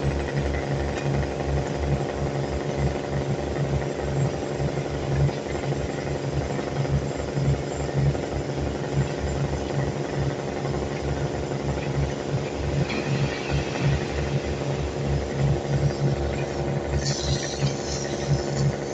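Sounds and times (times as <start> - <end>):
heavy diesel engine throbbing: 0.0 - 18.9.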